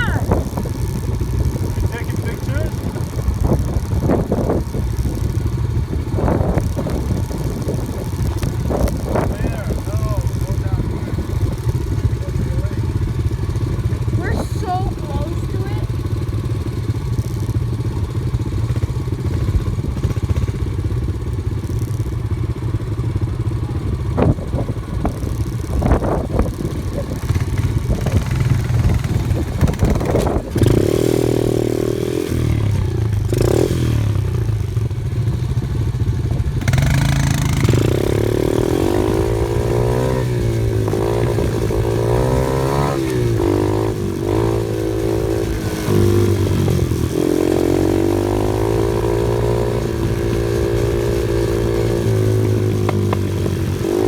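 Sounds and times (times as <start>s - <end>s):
off-road vehicle engine revving: 0.0s - 54.0s.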